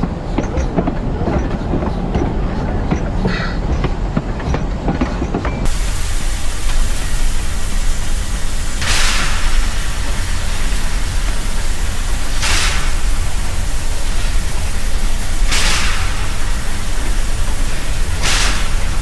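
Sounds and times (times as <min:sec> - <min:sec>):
steam train rumble: 0:00.0 - 0:19.0
steam hiss: 0:05.6 - 0:19.0.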